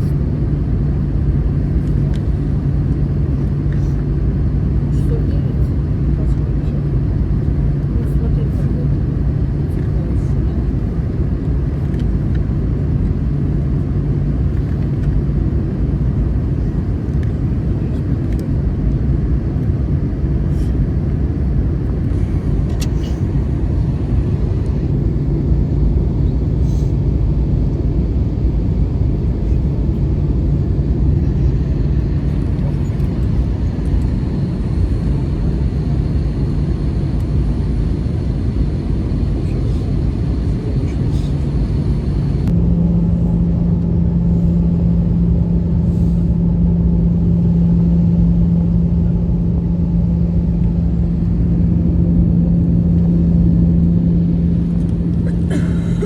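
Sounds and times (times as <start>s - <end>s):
airplane cabin engine rumble: 0.0s - 56.0s
constant hum: 0.0s - 56.0s.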